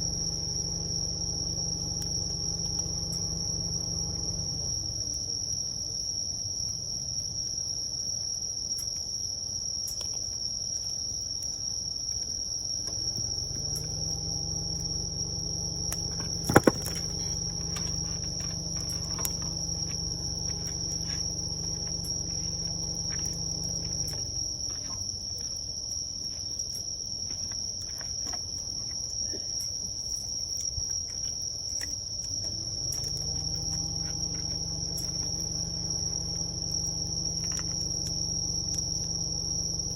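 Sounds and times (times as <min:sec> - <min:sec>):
low hum: 0:00.0 - 0:05.2, 0:12.9 - 0:25.1, 0:32.5 - 0:39.9
insects chirring: 0:00.0 - 0:39.9.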